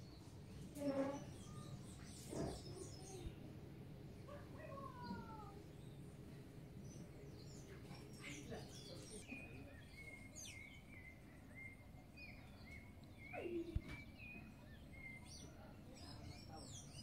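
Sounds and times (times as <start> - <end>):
faint outdoor background: 0.0 - 17.0
birds chirping and calling: 0.8 - 3.3.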